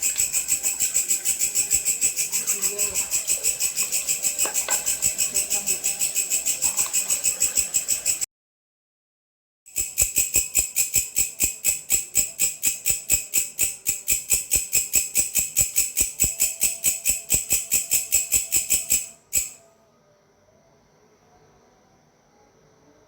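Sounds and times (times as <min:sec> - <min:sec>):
grasshopper stridulating: 0:00.0 - 0:08.2, 0:09.7 - 0:19.6.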